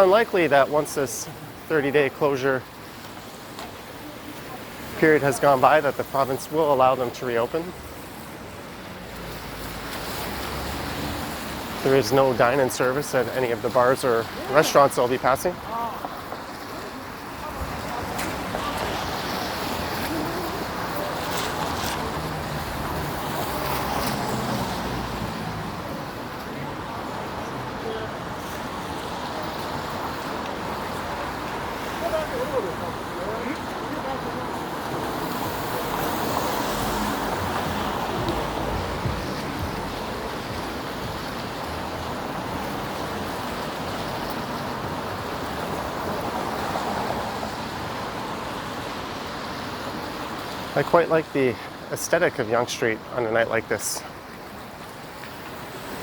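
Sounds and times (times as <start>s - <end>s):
tyres hissing on wet road: 0.0s - 56.0s.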